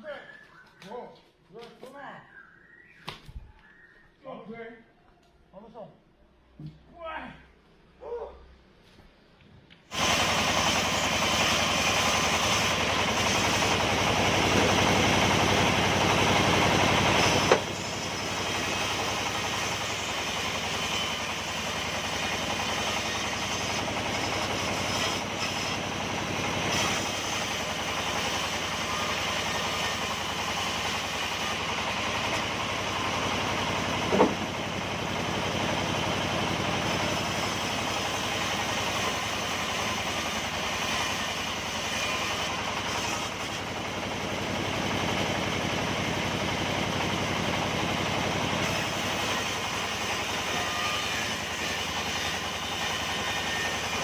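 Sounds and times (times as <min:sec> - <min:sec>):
sawmill machinery running: 0:09.9 - 0:54.0
brief knock: 0:34.1 - 0:34.4.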